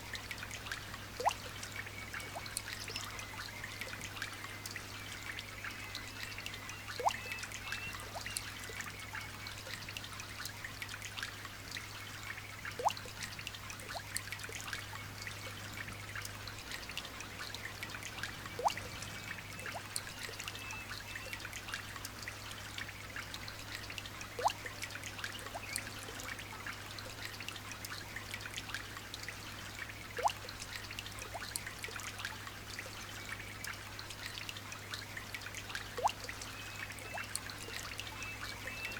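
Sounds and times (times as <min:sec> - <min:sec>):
single drip plinking: 0:12.8 - 0:13.1, 0:18.6 - 0:18.9.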